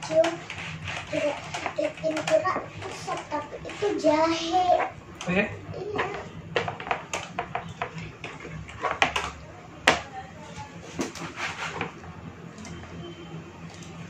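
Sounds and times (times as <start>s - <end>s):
sharp knocks and clicks: 1.0s - 3.3s, 5.9s - 10.1s.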